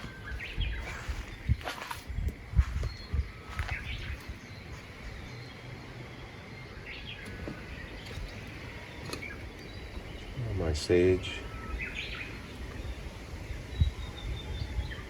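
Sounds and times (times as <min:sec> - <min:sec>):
wind on microphone: 0:00.0 - 0:05.4, 0:11.4 - 0:15.0
birds chirping: 0:00.0 - 0:15.0.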